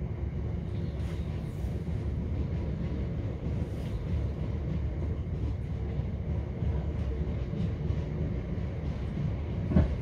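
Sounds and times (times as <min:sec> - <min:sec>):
train wheels rumbling on track: 0:00.0 - 0:10.0.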